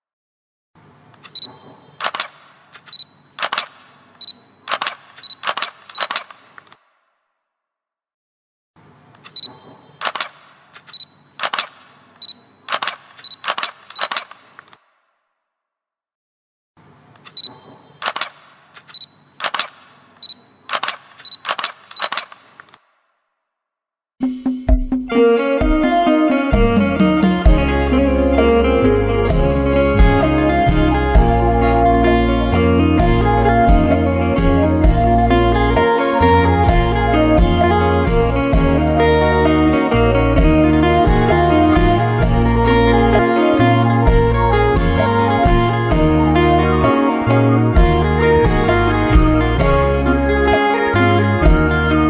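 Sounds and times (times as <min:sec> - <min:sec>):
camera focus beep: 0:01.2 - 0:06.6, 0:09.2 - 0:14.6, 0:17.2 - 0:22.5
camera shutter click: 0:01.2 - 0:06.8, 0:09.2 - 0:14.8, 0:17.2 - 0:22.8.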